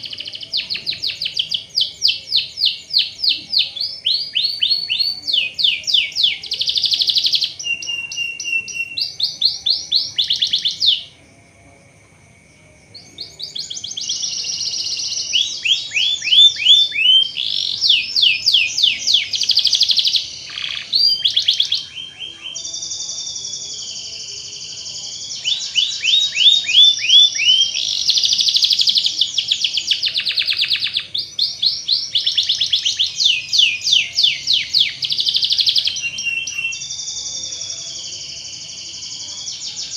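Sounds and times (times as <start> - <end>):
canary singing trills: 0.0 - 11.2, 12.9 - 39.9.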